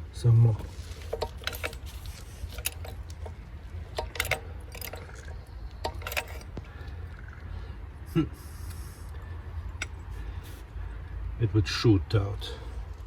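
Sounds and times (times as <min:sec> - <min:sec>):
short metallic clicks and clinks: 0:00.6 - 0:07.0.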